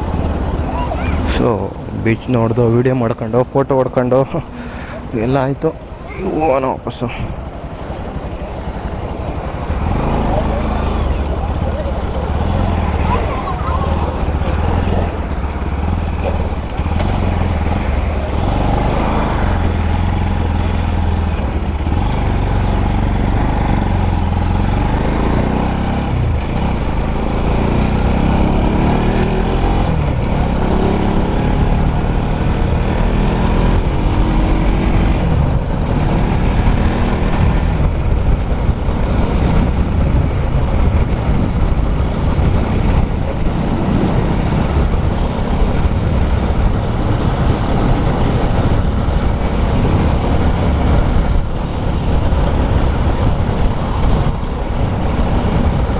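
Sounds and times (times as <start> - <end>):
wind and road noise: 0.0 - 55.9
motorcycle engine accelerating: 7.6 - 55.9.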